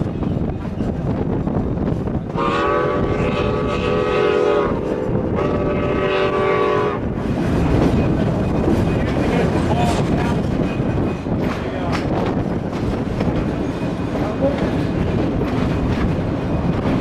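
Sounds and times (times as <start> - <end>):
train rumbling along track: 0.0 - 17.0
steam locomotive chime whistle: 2.4 - 7.0.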